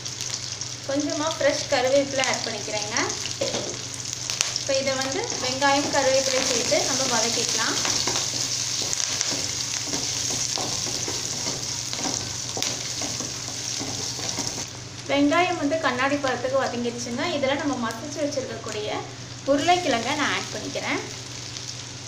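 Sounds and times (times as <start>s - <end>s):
food sizzling in hot oil: 0.0s - 22.0s
wooden spatula scraping pan: 5.3s - 14.6s.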